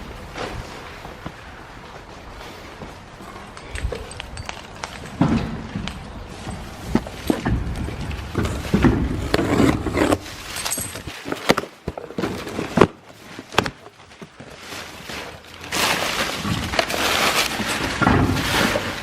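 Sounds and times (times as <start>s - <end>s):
tools being rummaged through: 3.2s - 8.8s, 10.0s - 13.4s.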